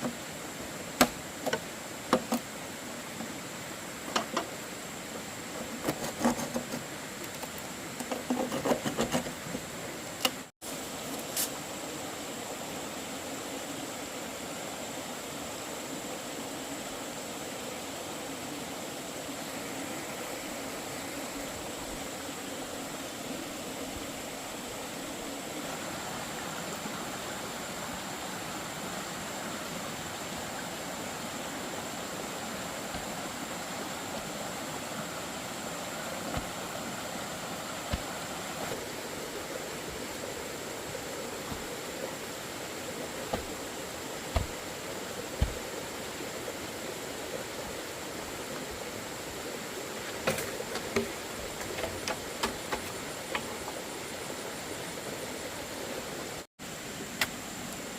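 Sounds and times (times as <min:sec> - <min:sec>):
dull knocks: 0:44.3 - 0:44.6.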